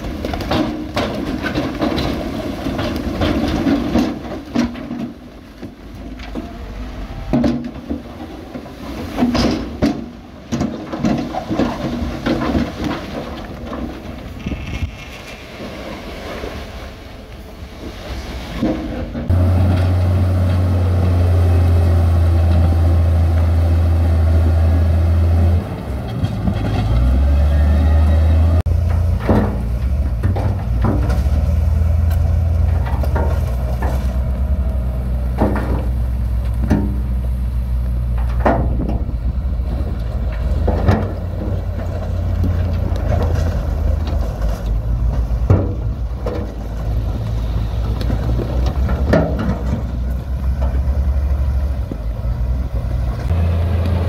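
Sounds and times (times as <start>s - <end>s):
diesel machinery rumbling: 0.0s - 54.0s
sharp knocks and clanks: 28.6s - 34.3s.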